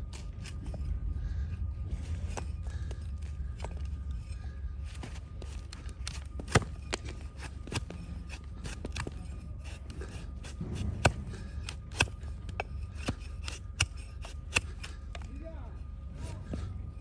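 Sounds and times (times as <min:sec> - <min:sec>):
blade shaving hoof cracks: 0:00.0 - 0:00.9, 0:04.9 - 0:15.4.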